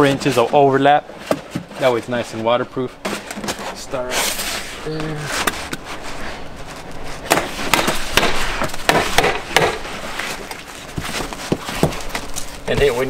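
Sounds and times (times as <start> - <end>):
hammer tacker strikes: 7.3 - 9.9.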